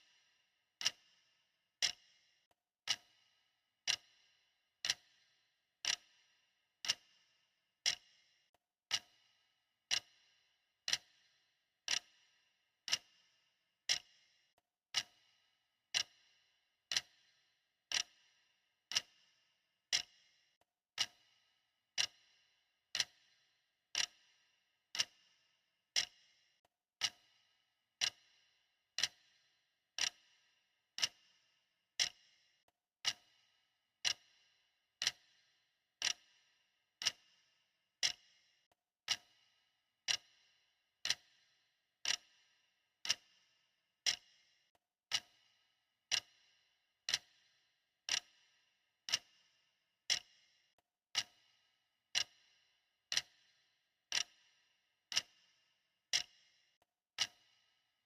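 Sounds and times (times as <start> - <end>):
clock ticking: 0.8 - 1.0, 1.8 - 2.0, 2.8 - 3.1, 3.8 - 4.1, 4.8 - 5.2, 5.8 - 6.1, 6.8 - 7.1, 7.8 - 8.1, 8.9 - 9.2, 9.9 - 10.2, 10.9 - 11.2, 11.9 - 12.1, 12.9 - 13.1, 13.9 - 14.1, 14.9 - 15.2, 15.9 - 16.2, 16.9 - 17.2, 17.9 - 18.2, 18.9 - 19.1, 19.9 - 20.1, 21.0 - 21.3, 22.0 - 22.2, 22.9 - 23.2, 24.0 - 24.2, 25.0 - 25.2, 26.0 - 26.2, 27.0 - 27.3, 28.0 - 28.2, 29.0 - 29.2, 30.0 - 30.2, 31.0 - 31.2, 32.0 - 32.2, 33.0 - 33.3, 34.0 - 34.3, 35.0 - 35.3, 36.0 - 36.3, 37.0 - 37.2, 39.0 - 39.3, 40.0 - 40.3, 41.0 - 41.3, 42.0 - 42.3, 43.0 - 43.3, 44.0 - 44.3, 45.1 - 45.4, 46.1 - 46.4, 47.1 - 47.4, 48.1 - 48.3, 49.1 - 49.4, 50.1 - 50.3, 51.1 - 51.5, 52.1 - 52.4, 53.1 - 53.4, 54.1 - 54.4, 55.1 - 55.3, 56.1 - 56.4, 57.2 - 57.5.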